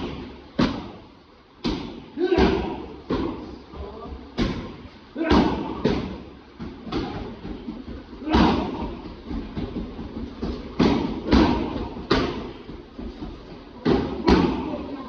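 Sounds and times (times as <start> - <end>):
kicks smacking a kick shield: 10.4 - 12.6.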